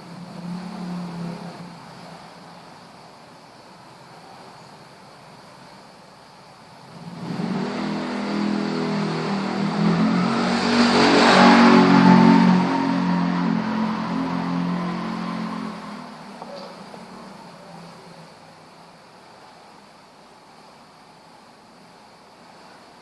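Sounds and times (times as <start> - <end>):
motor vehicle passing by: 0.0 - 2.7, 6.9 - 18.5.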